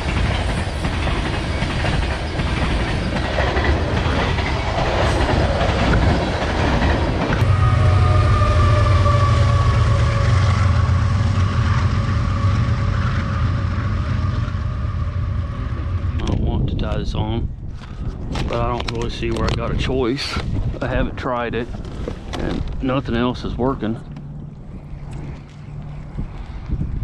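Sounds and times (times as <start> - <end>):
train wheels rattling on rails: 0.0 - 17.1
deep train drone: 0.0 - 27.0.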